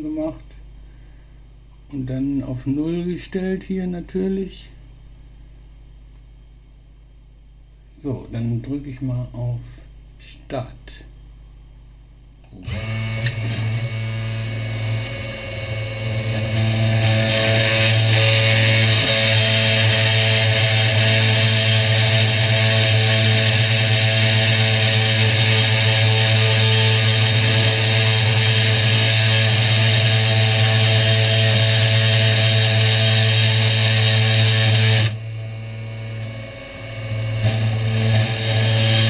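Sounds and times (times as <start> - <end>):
spindle motor hum: 12.4 - 39.0
router spindle cutting board: 12.6 - 21.8.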